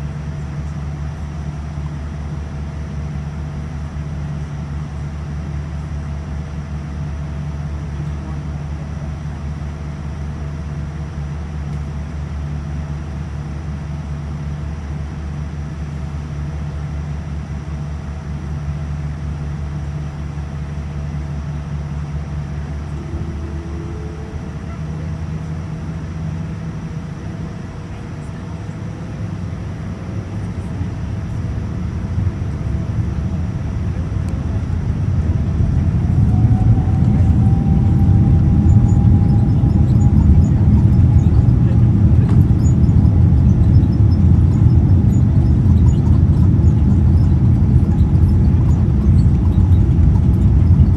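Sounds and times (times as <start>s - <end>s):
jet engine rising whine: 19.6s - 50.9s
jet engines humming: 19.6s - 50.9s.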